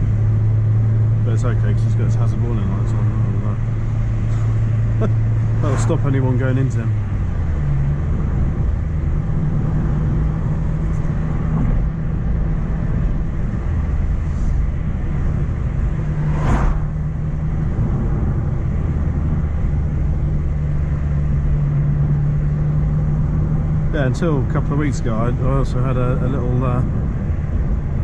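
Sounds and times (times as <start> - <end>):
car engine drone: 0.0 - 28.0
road noise: 0.0 - 28.0
brief rush of noise: 16.1 - 17.0.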